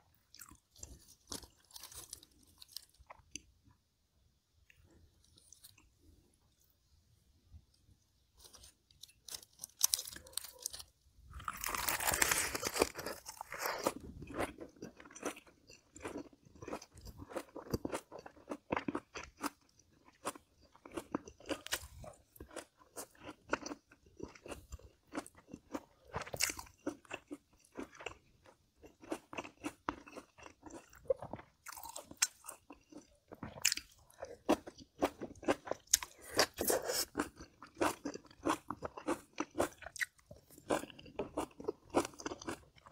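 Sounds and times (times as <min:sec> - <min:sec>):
crisp chewing crunches: 0:00.3 - 0:03.5, 0:08.4 - 0:42.9
person crunching a lettuce wrap: 0:00.3 - 0:03.6, 0:04.9 - 0:06.1, 0:08.4 - 0:42.9.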